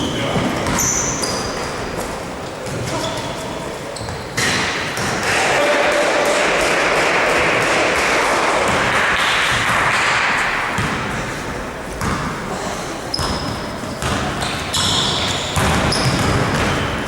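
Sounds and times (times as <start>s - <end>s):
sneaker squeaks: 0.0s - 5.1s, 13.1s - 17.0s
gym hall noise: 0.0s - 17.0s
basketball bouncing on court: 0.3s - 1.5s, 8.7s - 11.2s, 11.9s - 12.4s, 13.1s - 17.0s.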